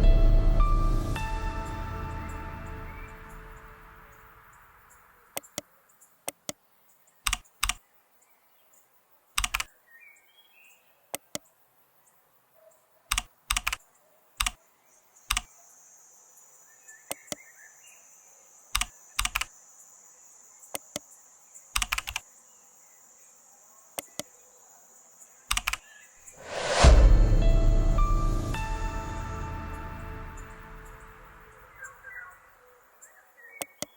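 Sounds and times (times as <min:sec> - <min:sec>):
music: 0:00.0 - 0:04.5, 0:26.4 - 0:32.0
keyboard and mouse clicks: 0:05.3 - 0:06.6, 0:07.2 - 0:07.8, 0:09.4 - 0:09.7, 0:11.1 - 0:11.5, 0:13.1 - 0:13.8, 0:14.4 - 0:14.6, 0:15.3 - 0:15.5, 0:17.1 - 0:17.4, 0:18.8 - 0:19.5, 0:20.7 - 0:21.0, 0:21.7 - 0:22.2, 0:24.0 - 0:24.3, 0:25.5 - 0:25.9, 0:33.6 - 0:33.9
faint high whine: 0:26.4 - 0:32.4.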